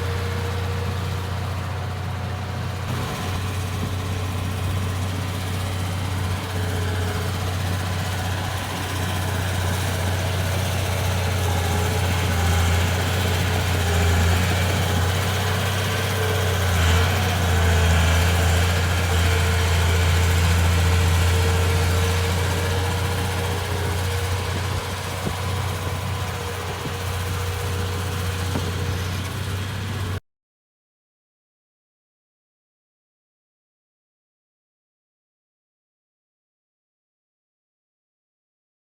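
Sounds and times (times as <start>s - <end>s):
bulldozer diesel engine running: 0.0s - 30.2s.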